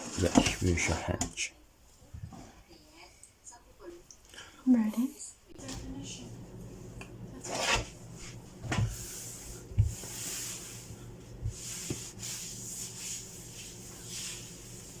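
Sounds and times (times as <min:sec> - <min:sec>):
hands rubbing paste into vegetables: 0:08.9 - 0:15.0.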